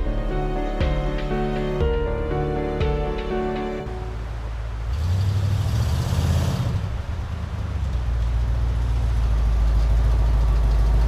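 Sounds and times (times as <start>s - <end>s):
motor vehicle engine running: 4.3s - 11.0s.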